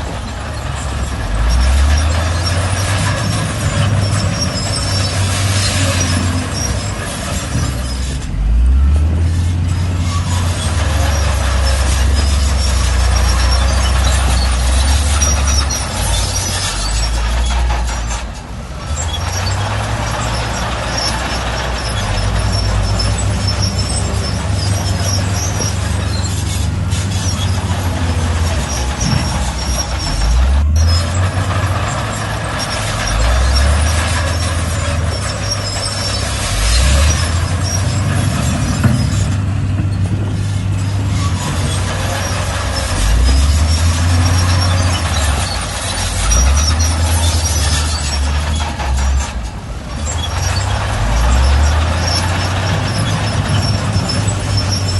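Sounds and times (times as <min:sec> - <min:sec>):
heavy diesel engines running: 0:00.0 - 0:54.9
high-pitched metallic squeaks: 0:00.0 - 0:54.9.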